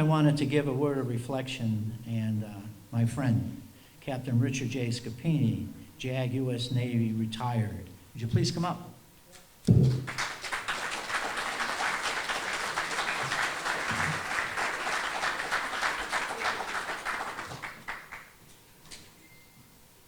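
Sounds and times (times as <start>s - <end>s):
crowd applauding: 9.8s - 18.4s.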